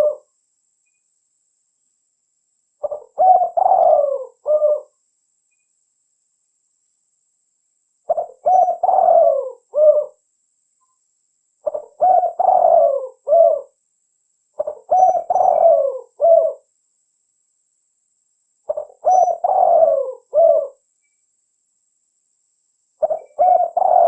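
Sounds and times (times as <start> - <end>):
dove cooing: 0.0 - 0.3, 2.8 - 5.0, 8.1 - 10.2, 11.6 - 13.8, 14.6 - 16.7, 18.7 - 20.8, 23.0 - 24.0.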